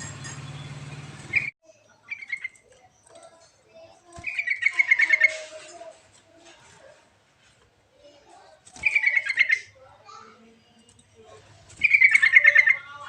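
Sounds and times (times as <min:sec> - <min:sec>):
bulbul chirping: 0:00.0 - 0:01.5, 0:04.2 - 0:05.4, 0:11.8 - 0:13.0
steady engine-like hum: 0:00.0 - 0:01.6.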